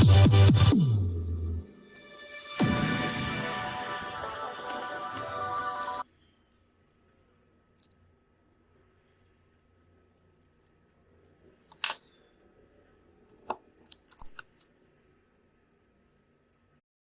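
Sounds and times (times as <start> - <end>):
tools clicking and tapping: 7.6 - 12.1, 13.3 - 14.7.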